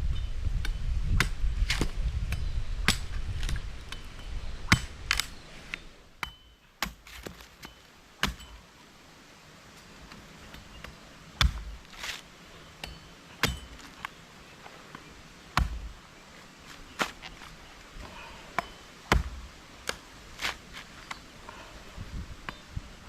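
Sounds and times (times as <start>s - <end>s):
sharp chopping knocks: 1.1s - 2.0s, 11.4s - 12.1s, 12.8s - 13.9s, 15.6s - 15.9s, 19.1s - 19.4s.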